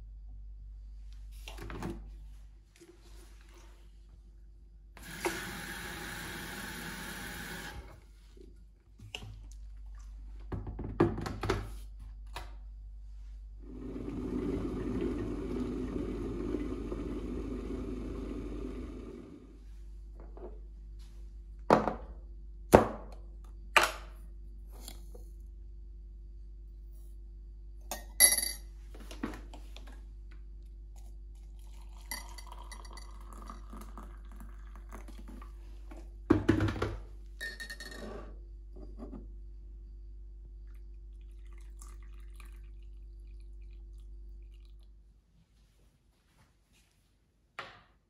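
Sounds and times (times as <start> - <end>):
sharp knocks and clinks: 27.9 - 28.7.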